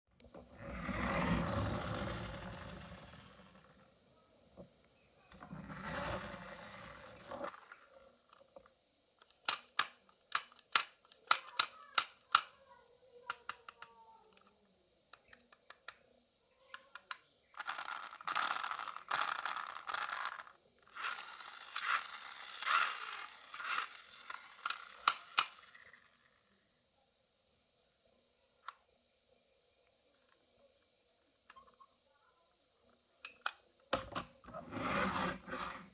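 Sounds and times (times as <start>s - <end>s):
marbles rolling on wooden track: 0.5s - 3.8s, 5.3s - 7.8s, 17.6s - 26.1s.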